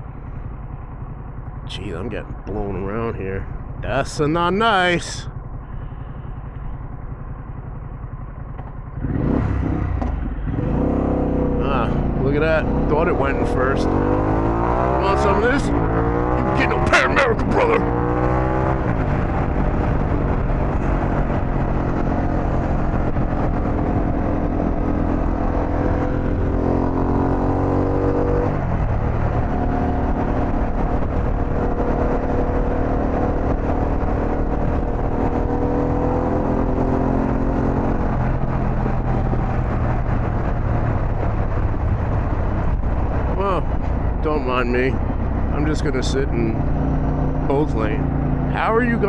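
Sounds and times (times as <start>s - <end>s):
motorcycle engine under load: 5.3s - 13.0s.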